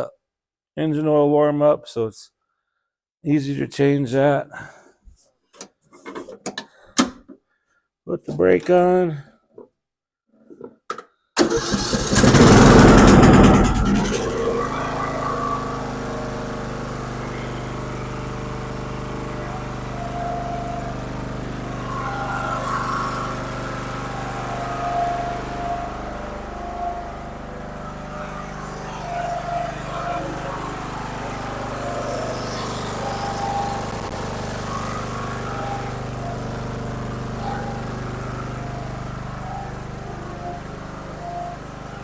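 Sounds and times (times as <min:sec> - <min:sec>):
riding mower engine running: 0:11.4 - 0:42.0.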